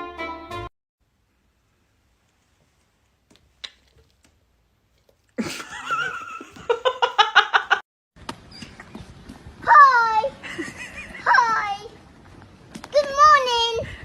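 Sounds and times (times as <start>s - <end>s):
person laughing: 5.4s - 7.8s, 10.4s - 11.3s.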